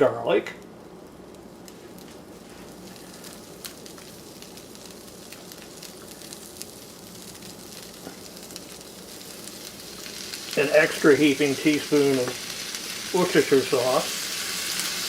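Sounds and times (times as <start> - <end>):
small pops and crackles: 1.3 - 10.6, 12.1 - 12.9
butter sizzling in a saucepan: 1.7 - 15.0.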